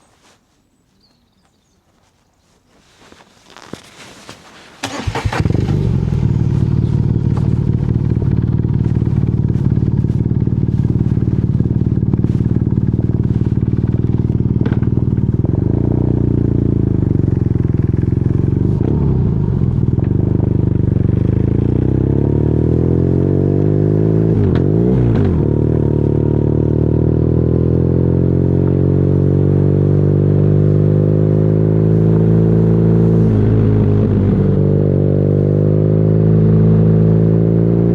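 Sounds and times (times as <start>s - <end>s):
motorcycle engine idling and revving: 3.1s - 37.9s.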